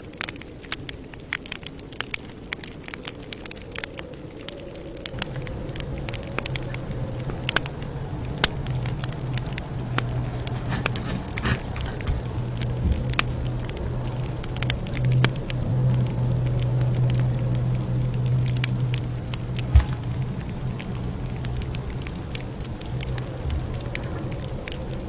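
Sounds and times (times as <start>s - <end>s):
campfire crackling: 0.0s - 25.0s.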